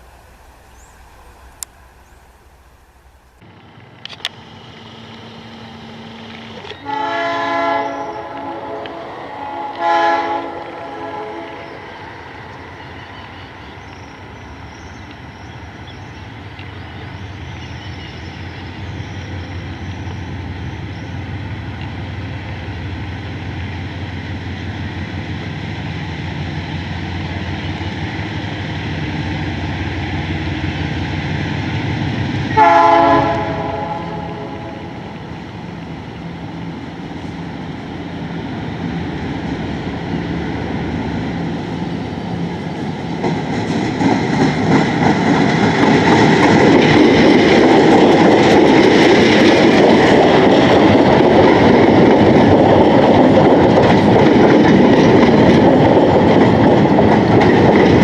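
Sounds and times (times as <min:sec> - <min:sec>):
approaching train rumble: 0:00.0 - 0:58.0
locomotive horn blasts: 0:06.6 - 0:11.8, 0:32.5 - 0:35.0.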